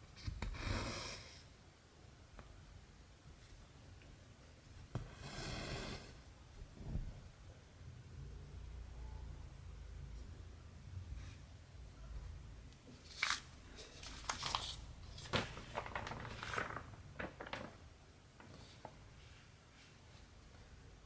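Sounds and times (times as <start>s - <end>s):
hands rustling materials: 13.0s - 17.8s.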